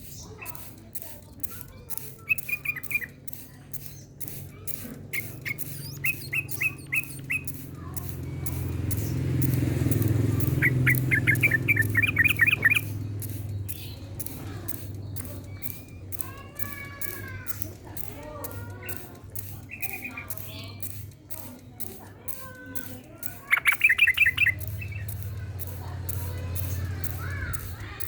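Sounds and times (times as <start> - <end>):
bird singing sharp chirps: 0.0 - 28.0
low engine hum: 4.2 - 16.6, 23.4 - 28.0.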